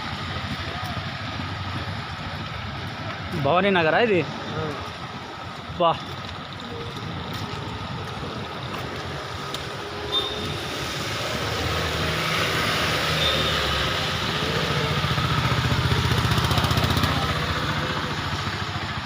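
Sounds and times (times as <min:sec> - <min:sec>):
vehicle engine running: 0:00.0 - 0:09.4, 0:14.1 - 0:19.0.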